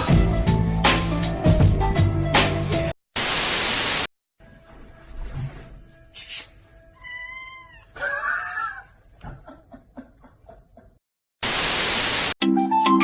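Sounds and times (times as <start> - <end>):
static hiss burst: 3.2 - 4.1, 11.4 - 12.4
cat meowing: 7.0 - 8.8.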